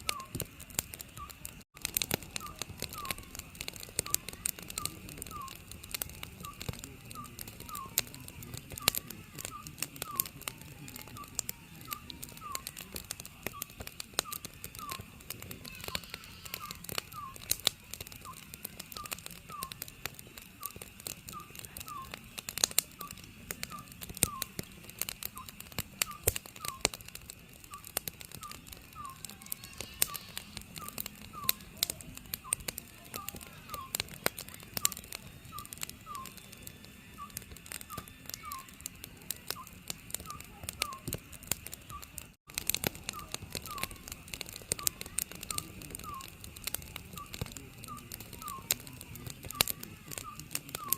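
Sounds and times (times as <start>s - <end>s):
owl calling: 0.0s - 0.4s, 2.1s - 3.4s, 4.0s - 5.7s, 6.4s - 17.6s, 18.2s - 19.8s, 20.6s - 22.2s, 23.0s - 24.7s, 25.4s - 27.0s, 27.7s - 31.7s, 32.4s - 34.2s, 34.8s - 36.5s, 37.1s - 38.8s, 39.5s - 41.2s, 43.0s - 48.8s, 49.5s - 50.9s
wood fire crackling: 0.0s - 50.9s.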